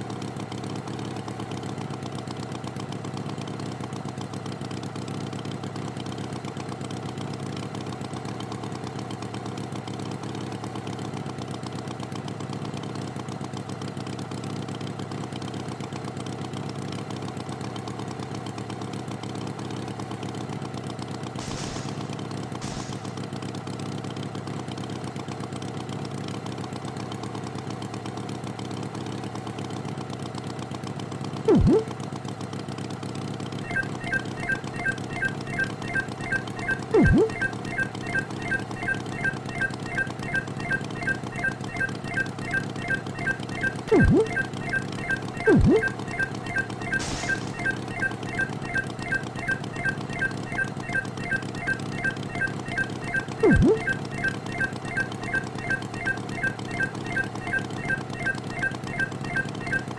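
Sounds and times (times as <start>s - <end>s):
fast regular ticking: 21.4s - 23.3s.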